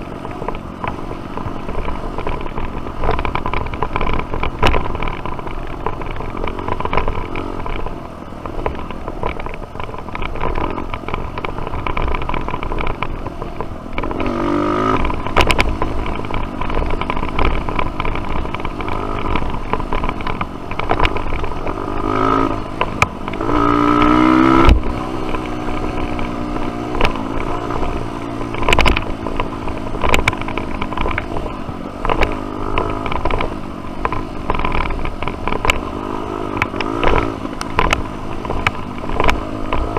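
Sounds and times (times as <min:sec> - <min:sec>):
knocks and clatter: 0:00.0 - 0:39.9
dirt bike engine revving: 0:14.0 - 0:31.5.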